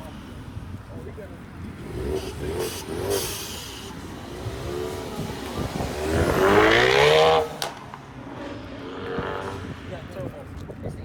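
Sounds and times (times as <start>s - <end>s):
car engine revving: 1.7s - 10.0s.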